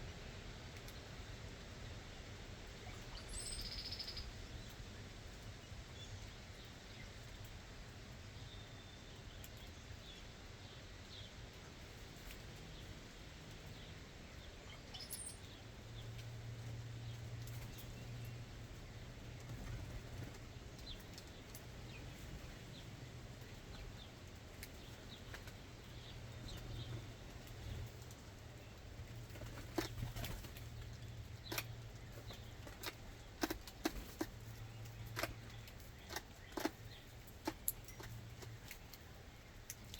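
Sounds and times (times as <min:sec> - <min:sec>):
low steady hum: 0:00.0 - 0:39.9
birds chirping: 0:02.8 - 0:07.5, 0:08.3 - 0:39.9
wing flutters: 0:29.2 - 0:30.9.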